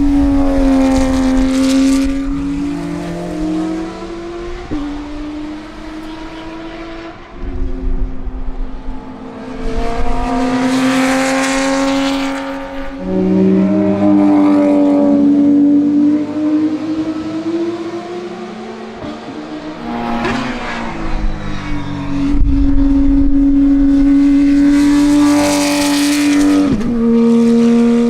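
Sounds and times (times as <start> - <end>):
race car engine screaming: 19.7 - 26.4.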